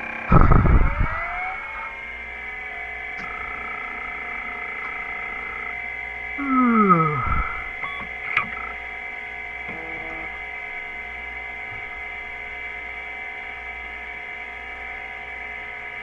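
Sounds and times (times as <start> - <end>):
steady high whine: 0.0 - 16.0
electronic tones sweeping: 2.7 - 8.9, 9.7 - 10.6.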